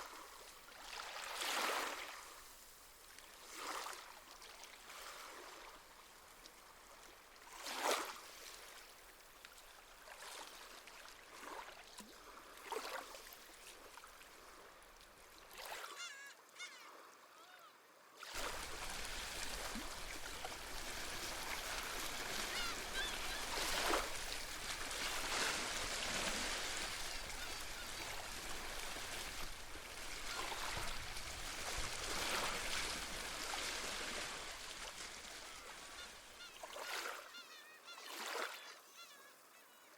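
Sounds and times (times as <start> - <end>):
waves washing on shore: 0.0 - 8.9, 18.2 - 37.2
seabirds calling: 15.8 - 17.7, 18.4 - 29.0, 35.3 - 39.9.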